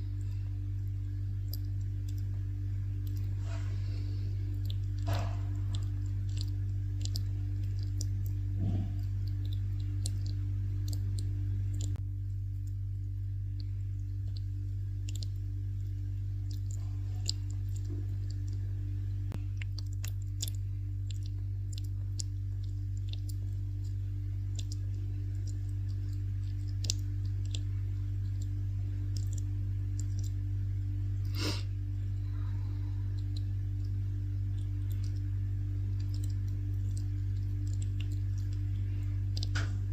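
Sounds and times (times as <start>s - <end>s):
steady low hum: 0.0s - 39.9s
bat chewing clicks: 4.5s - 12.0s, 19.3s - 30.4s.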